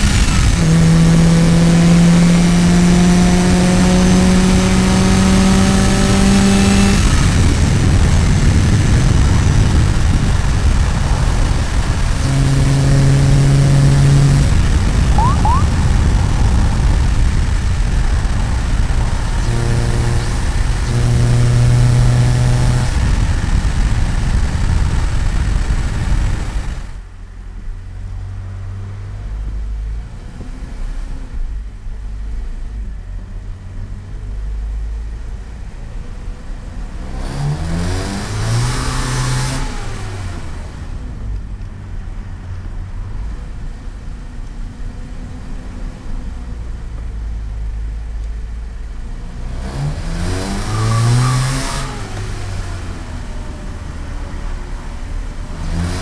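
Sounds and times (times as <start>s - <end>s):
car engine revving: 0.0s - 26.6s, 37.0s - 40.9s, 49.1s - 56.0s.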